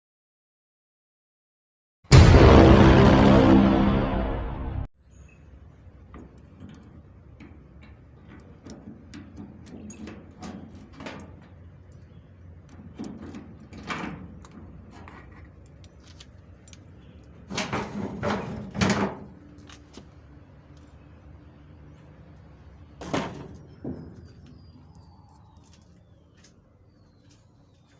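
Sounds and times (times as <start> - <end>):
loud bangs: 2.1 - 4.9
knocks and clatter of handling: 6.1 - 20.1, 23.0 - 24.7.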